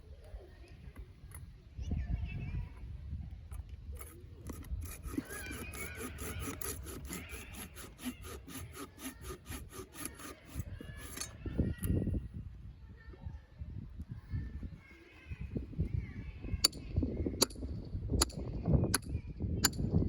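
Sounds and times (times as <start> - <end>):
hand saw rasping through wood: 4.0 - 11.4.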